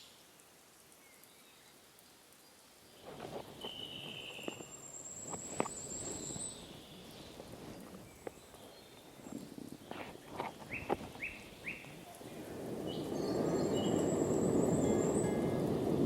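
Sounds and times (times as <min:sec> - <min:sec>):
steady hiss: 0:00.0 - 0:16.0
bird chirps: 0:03.0 - 0:07.4, 0:10.6 - 0:12.1, 0:12.8 - 0:16.0.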